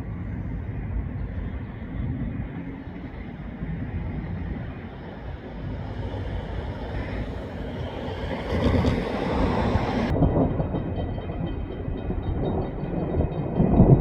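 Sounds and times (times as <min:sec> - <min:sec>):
car engine and road noise: 0:00.7 - 0:10.1.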